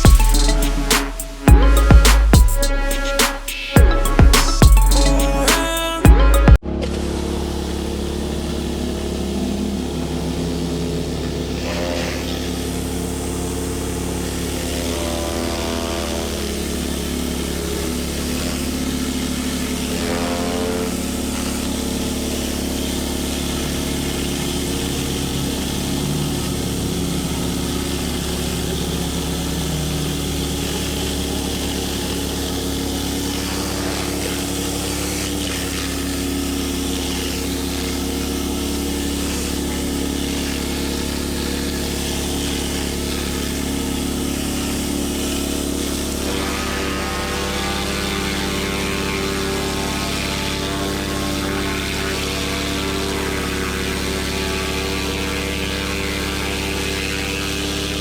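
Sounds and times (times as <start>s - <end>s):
pressure washer engine running: 6.7s - 58.0s.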